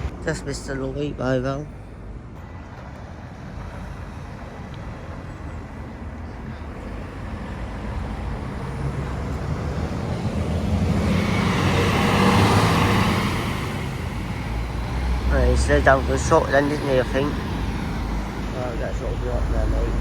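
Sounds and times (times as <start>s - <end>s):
vehicle passing by: 6.4s - 20.0s.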